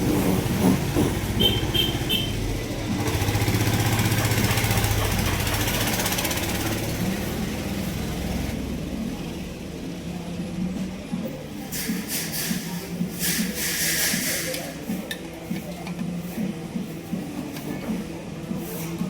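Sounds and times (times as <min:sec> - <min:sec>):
chainsaw engine running: 0:02.9 - 0:08.5.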